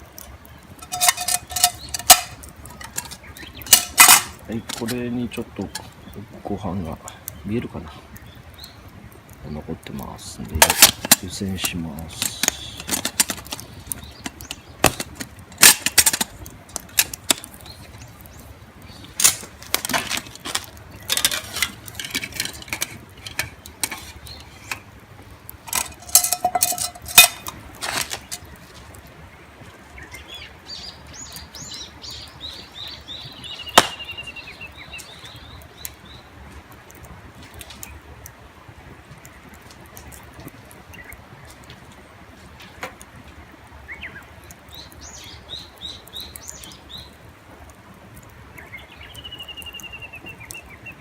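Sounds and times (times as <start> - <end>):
cookware and packaging clatter: 0.8 - 5.0, 10.6 - 17.4, 19.2 - 24.9, 25.6 - 28.4
small bird chirping: 29.9 - 36.3, 48.6 - 51.0.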